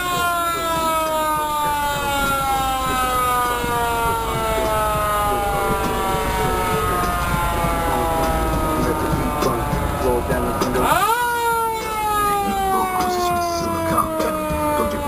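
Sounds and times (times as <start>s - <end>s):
siren falling tone: 0.0s - 15.0s
low rumble: 2.0s - 11.0s.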